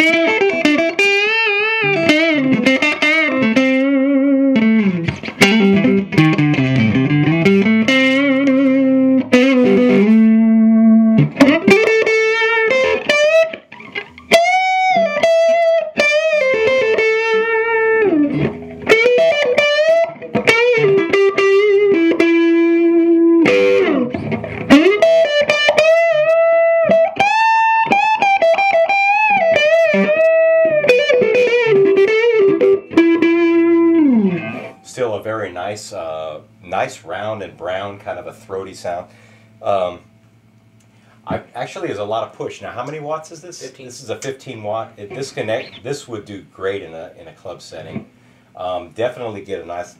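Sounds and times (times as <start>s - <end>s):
overdriven electric guitar lead: 0.0s - 34.9s, 45.0s - 45.9s.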